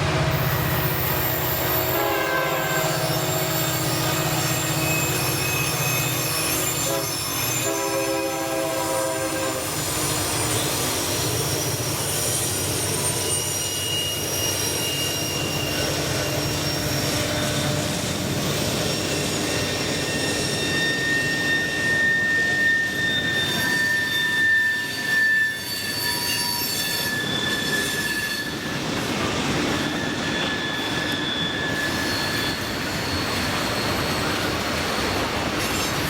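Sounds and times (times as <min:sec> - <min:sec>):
locomotive horn: 0:00.0 - 0:11.1
railcars rolling: 0:00.0 - 0:36.0
wheel squeal: 0:00.3 - 0:08.2, 0:09.4 - 0:36.0.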